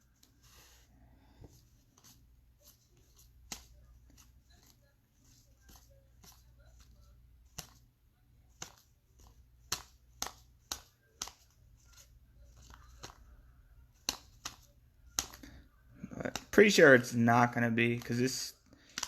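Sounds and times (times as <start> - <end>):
faint low hum: 0.0 - 16.5
cards snapping together: 3.1 - 4.7, 7.5 - 7.8, 8.6 - 13.2, 13.9 - 15.5, 16.1 - 16.5, 18.8 - 19.0.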